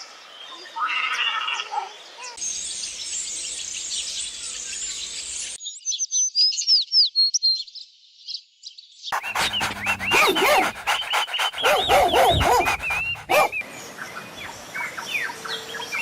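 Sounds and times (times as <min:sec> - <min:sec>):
chorus of birds chirping: 0:09.2 - 0:15.6.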